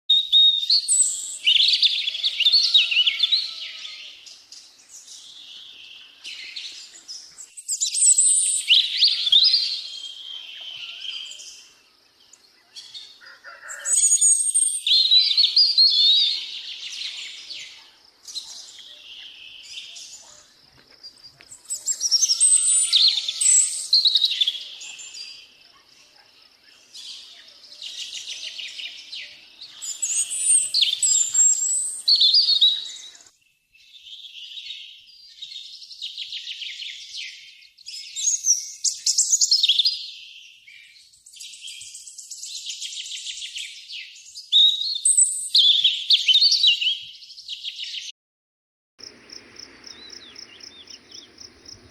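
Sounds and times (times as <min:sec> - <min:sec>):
songbirds singing: 0:00.1 - 0:48.1, 0:49.0 - 0:51.9.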